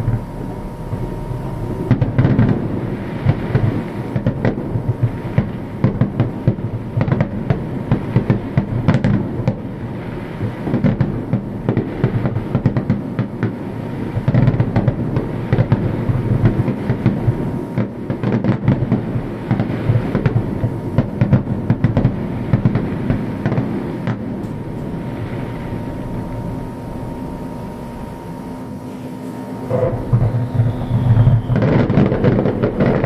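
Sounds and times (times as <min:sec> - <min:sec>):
deep rolling rumble: 0:00.0 - 0:07.0, 0:19.0 - 0:33.0
fireworks bangs and crackles: 0:00.0 - 0:33.0.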